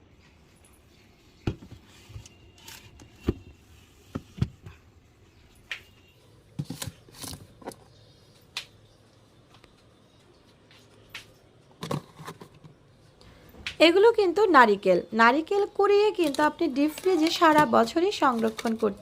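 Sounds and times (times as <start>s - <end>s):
plastic containers clattering: 6.5s - 8.0s, 11.7s - 12.9s, 16.2s - 19.0s.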